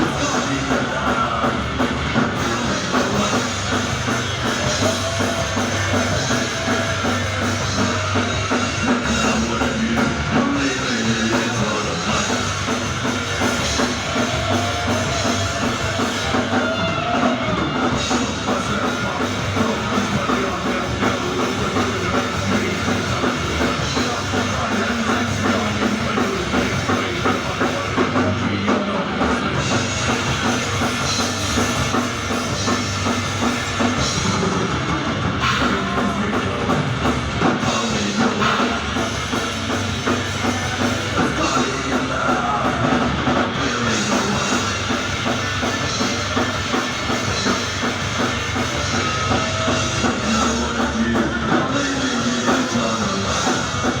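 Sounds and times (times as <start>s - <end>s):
heavy metal band playing live: 0.0s - 54.0s.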